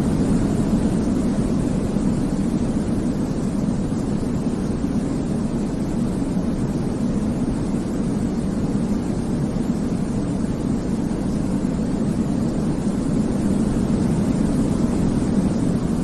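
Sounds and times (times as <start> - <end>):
deep muffled brown noise: 0.0 - 16.0.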